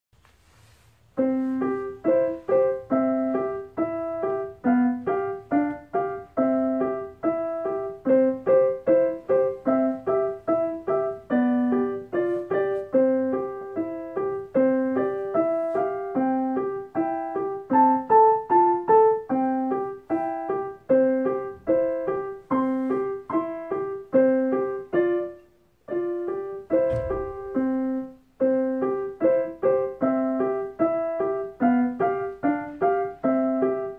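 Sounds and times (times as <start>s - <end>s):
keyboard playing simple melody: 1.1s - 33.9s
low thump: 26.8s - 27.8s.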